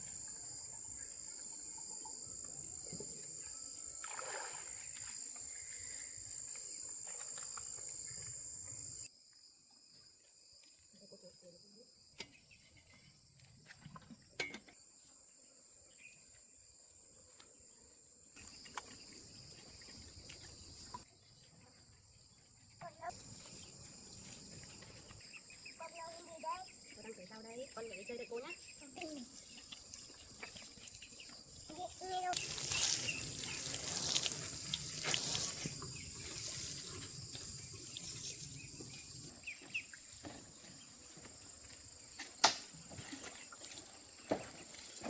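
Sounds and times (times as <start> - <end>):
high-pitched insects chorus: 0.0 - 13.0, 22.0 - 42.4.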